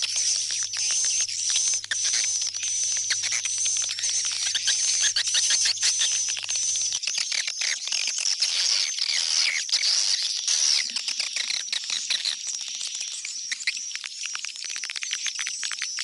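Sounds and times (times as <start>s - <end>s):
swiftlets twittering: 0.0s - 7.0s.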